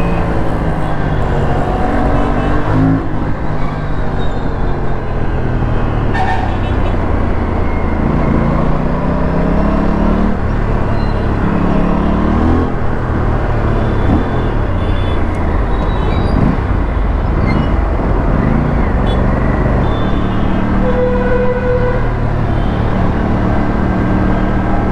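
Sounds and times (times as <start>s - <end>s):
motorcycle engine accelerating: 0.0s - 3.6s
traffic noise: 0.0s - 24.9s.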